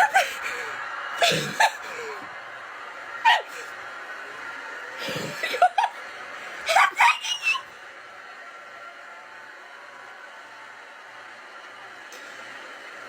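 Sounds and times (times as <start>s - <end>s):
woman screaming in shrieks: 3.2s - 3.7s, 6.7s - 7.7s.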